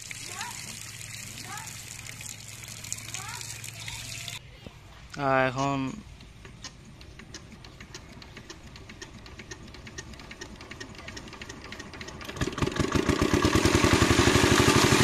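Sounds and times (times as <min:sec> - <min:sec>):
water pump engine starting: 0:00.0 - 0:04.4, 0:07.3 - 0:15.0.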